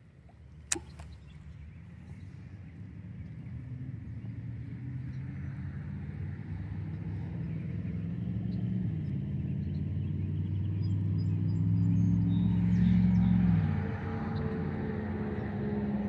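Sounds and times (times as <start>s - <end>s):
vehicle engine passing by: 5.4s - 16.0s.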